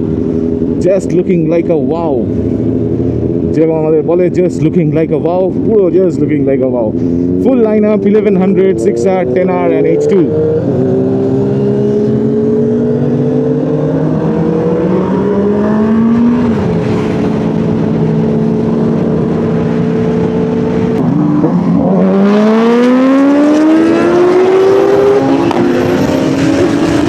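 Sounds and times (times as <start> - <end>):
motorcycle engine revving: 6.9 - 27.0.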